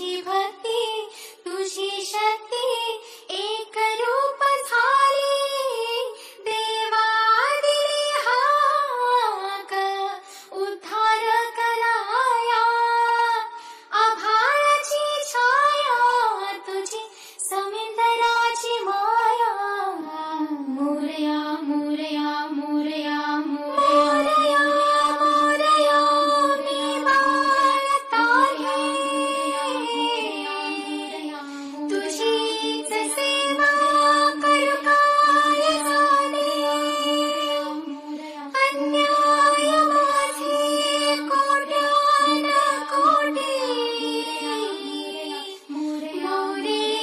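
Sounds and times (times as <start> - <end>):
high voice singing: 16.4 - 47.0.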